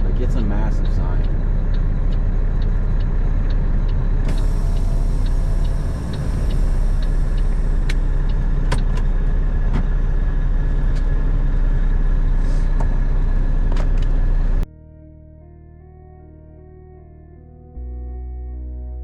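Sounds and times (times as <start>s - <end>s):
engine and road rumble: 0.0s - 14.7s
faint regular ticking: 0.3s - 9.1s.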